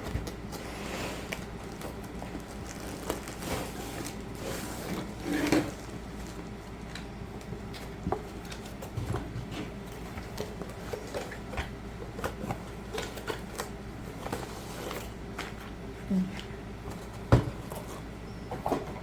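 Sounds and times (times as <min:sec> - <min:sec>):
low steady hum: 0:00.0 - 0:19.0
packaging clicks and rustles: 0:01.2 - 0:15.8.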